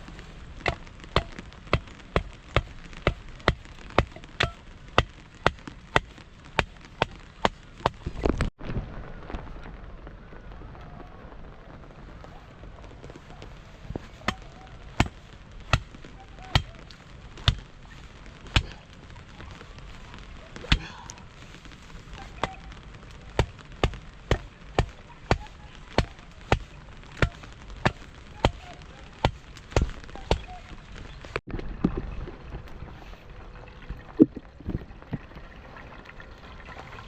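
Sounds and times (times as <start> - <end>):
chopping strikes: 18.5 - 18.8.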